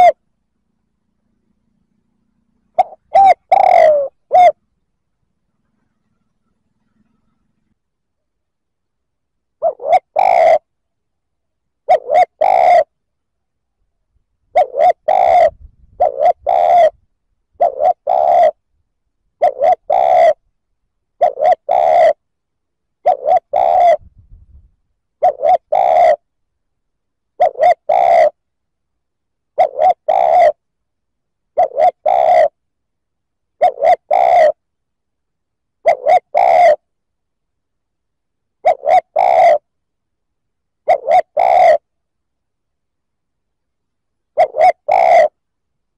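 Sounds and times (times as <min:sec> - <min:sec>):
dove cooing: 0:00.0 - 0:00.2, 0:02.1 - 0:04.6, 0:09.6 - 0:10.7, 0:11.8 - 0:13.0, 0:14.5 - 0:17.0, 0:17.6 - 0:18.7, 0:19.4 - 0:20.4, 0:21.2 - 0:22.2, 0:23.0 - 0:24.2, 0:25.2 - 0:26.3, 0:27.4 - 0:28.4, 0:29.5 - 0:30.6, 0:31.5 - 0:32.6, 0:33.6 - 0:34.6, 0:35.8 - 0:36.9, 0:38.6 - 0:39.7, 0:40.8 - 0:41.9, 0:44.3 - 0:45.4.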